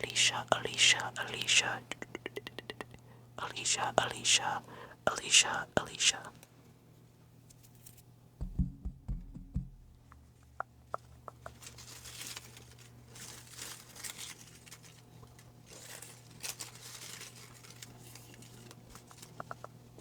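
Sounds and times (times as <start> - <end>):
low handling bumps: 8.4 - 10.2
paper crinkling and rustling: 11.5 - 19.6.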